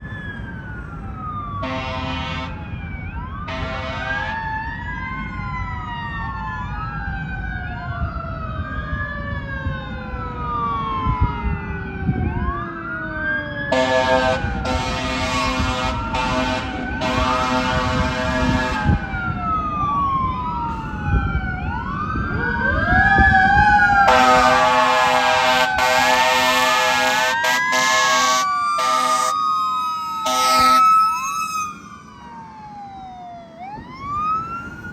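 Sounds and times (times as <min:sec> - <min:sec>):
electronic wail sirens: 0:00.0 - 0:34.9
air horn blasts: 0:01.6 - 0:02.6, 0:03.5 - 0:04.4, 0:13.7 - 0:19.0, 0:24.1 - 0:29.3, 0:30.2 - 0:30.9
mechanical siren winding down: 0:02.9 - 0:34.9.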